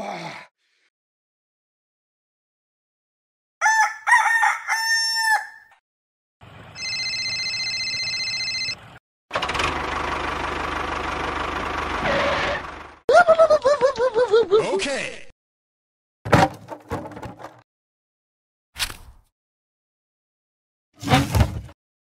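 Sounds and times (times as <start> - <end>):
rooster crowing: 3.6 - 5.7
engine rumbling: 6.4 - 7.0, 8.8 - 13.0.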